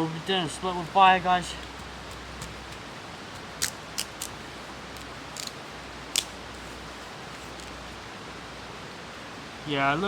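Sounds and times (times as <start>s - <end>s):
background hiss: 0.0s - 10.0s
wood cracking under knife: 3.6s - 4.4s, 5.0s - 6.4s.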